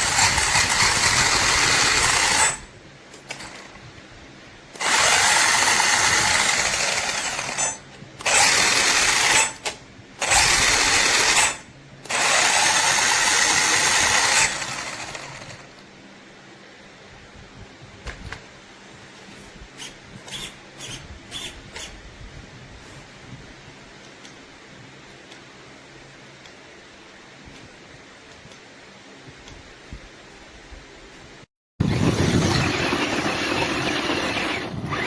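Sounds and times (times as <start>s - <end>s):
toy car motor whirring: 0.0s - 2.6s, 4.8s - 15.6s, 19.8s - 22.0s.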